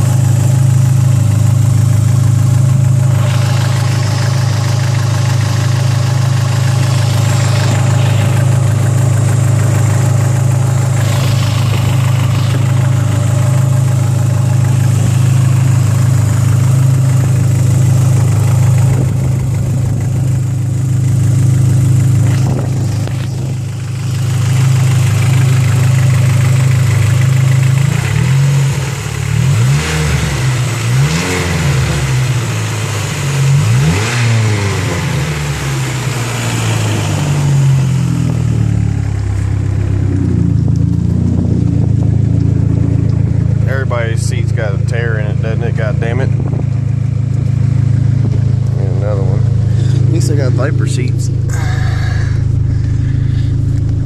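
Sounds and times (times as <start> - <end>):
car engine idling: 0.0 - 54.0
engine revving blips: 3.1 - 17.0.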